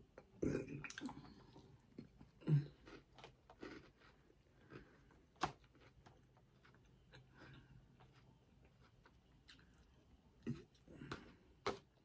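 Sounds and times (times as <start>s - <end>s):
person chewing food: 2.7s - 9.9s.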